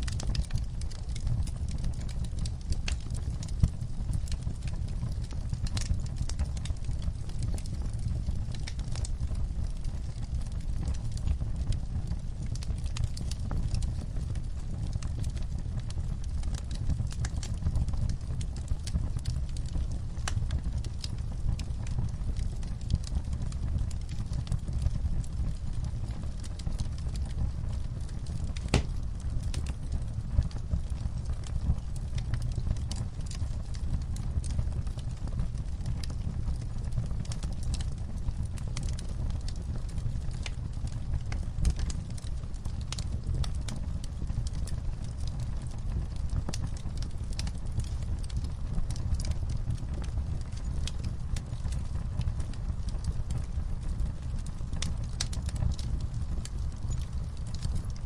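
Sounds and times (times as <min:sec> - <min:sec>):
wood fire crackling: 0:00.0 - 0:58.0
loud fire pop: 0:28.6 - 0:29.0.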